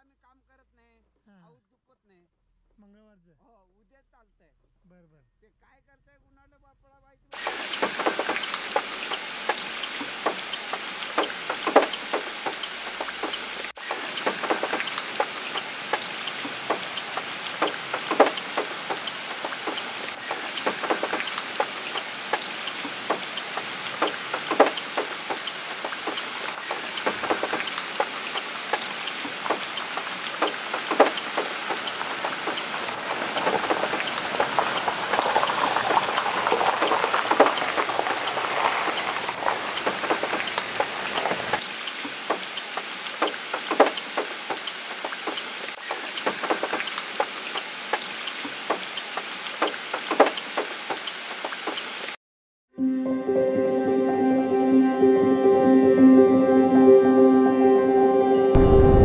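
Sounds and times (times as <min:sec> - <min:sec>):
large drops ticking on a surface: 0:07.4 - 0:41.6
steady rain falling: 0:07.4 - 0:52.2.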